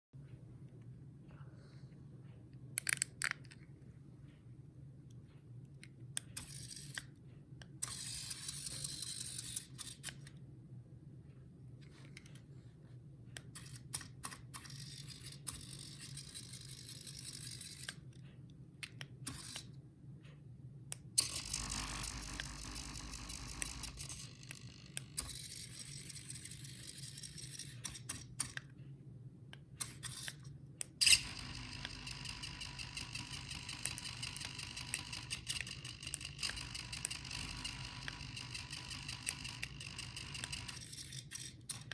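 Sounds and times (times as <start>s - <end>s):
steady low hum: 3.5s - 41.9s
motor whine: 21.2s - 25.4s, 31.0s - 40.9s
small electric motors whirring: 21.2s - 28.5s, 31.0s - 41.9s.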